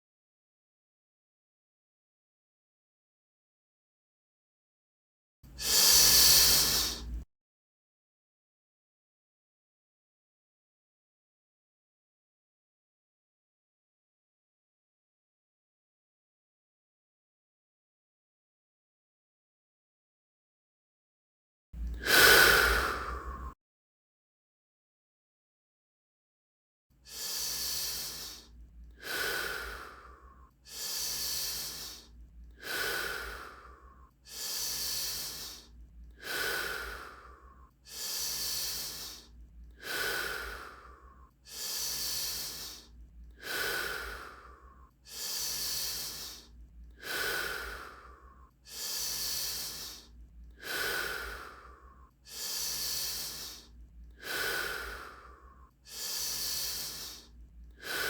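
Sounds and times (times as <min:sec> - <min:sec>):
person breathing deeply: 0:05.5 - 0:07.2, 0:21.8 - 0:23.6, 0:27.1 - 0:58.0.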